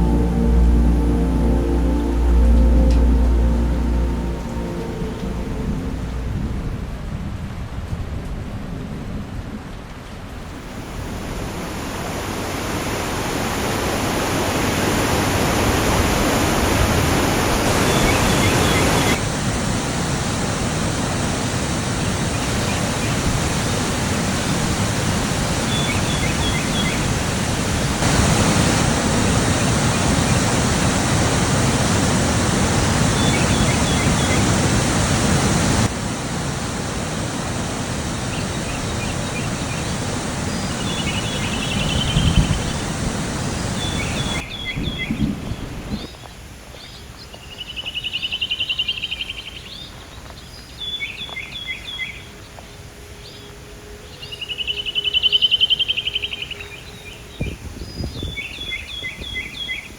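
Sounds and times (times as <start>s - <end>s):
rushing water: 0.0s - 7.8s, 10.2s - 46.0s.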